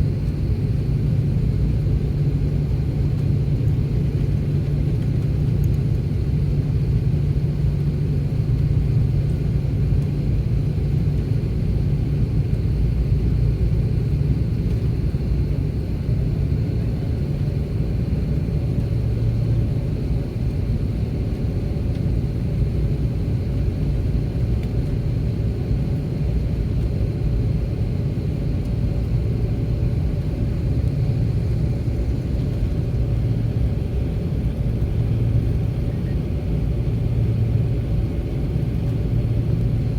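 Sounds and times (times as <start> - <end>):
jet engines idling: 27.8 - 39.9.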